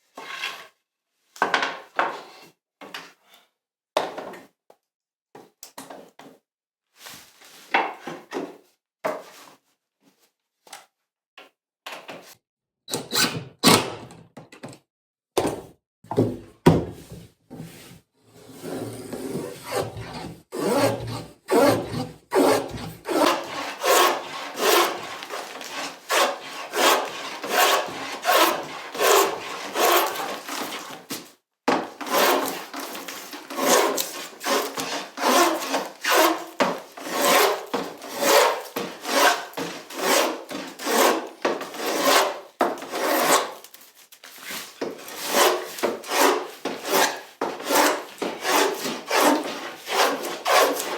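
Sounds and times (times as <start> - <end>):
hand tool working wood: 18.5 - 50.9.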